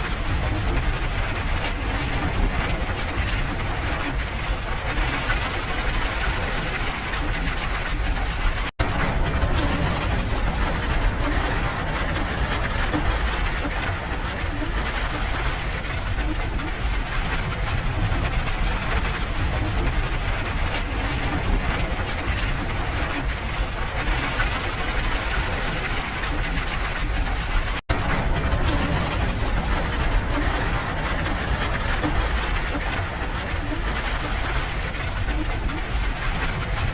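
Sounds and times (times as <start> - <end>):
deep continuous rumble: 0.0 - 36.9
steady rain hiss: 8.8 - 23.1, 27.9 - 36.8.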